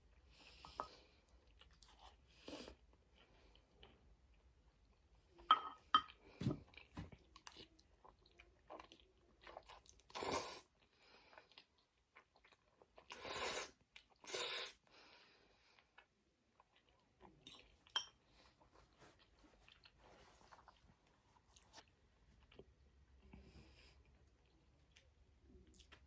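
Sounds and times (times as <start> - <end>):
chewing with wet mouth clicks: 24.4 - 26.0.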